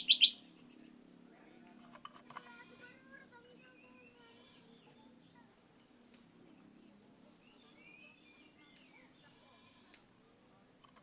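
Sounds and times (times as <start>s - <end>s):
bird chirps and whistles: 0.0s - 0.4s
low steady hum: 0.0s - 11.0s.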